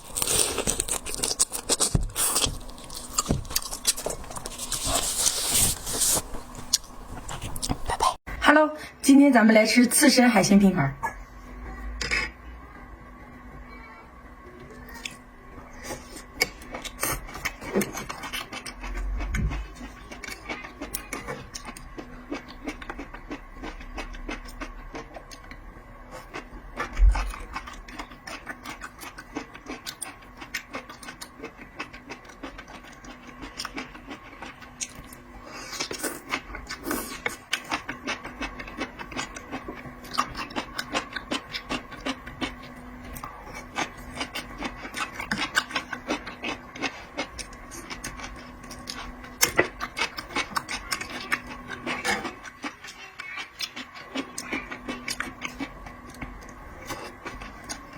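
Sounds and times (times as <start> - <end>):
clicks and scrapes of food handling: 0.0 - 8.2
wet mouth eating sounds: 0.0 - 8.2.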